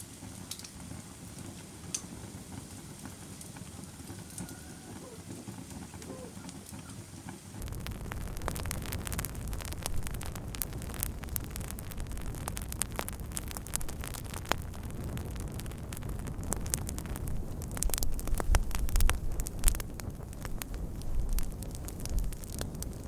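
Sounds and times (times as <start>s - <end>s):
wood fire crackling and popping: 0.0s - 23.0s
low rumble: 7.6s - 23.0s.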